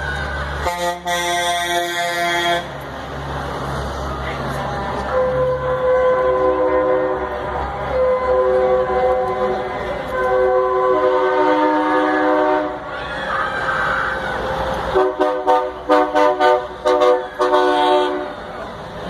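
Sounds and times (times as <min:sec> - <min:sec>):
truck air horns: 0:00.1 - 0:02.8, 0:05.0 - 0:12.9, 0:14.8 - 0:18.5.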